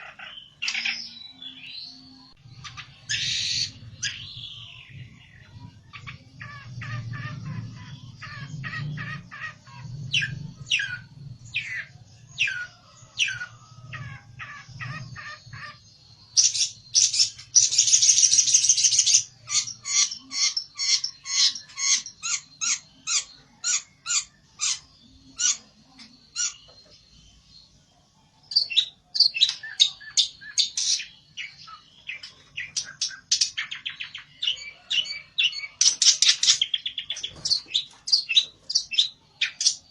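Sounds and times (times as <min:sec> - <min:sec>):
buzzy bird trill: 0:00.0 - 0:27.8.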